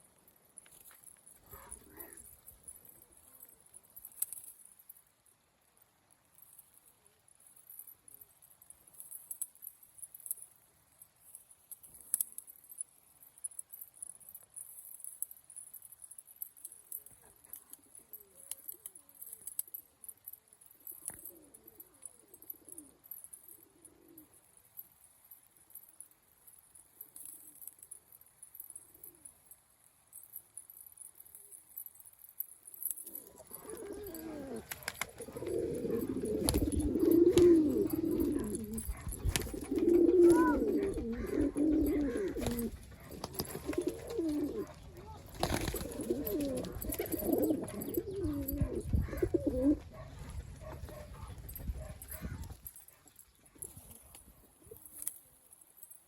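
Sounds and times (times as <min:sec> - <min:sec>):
pigeons cooing: 0:01.5 - 0:03.2, 0:16.6 - 0:24.4, 0:32.8 - 0:55.1.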